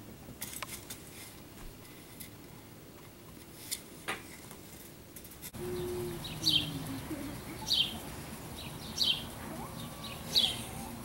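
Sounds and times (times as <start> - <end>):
steady low hum: 0.0 - 11.0
bird chirping: 5.6 - 11.0.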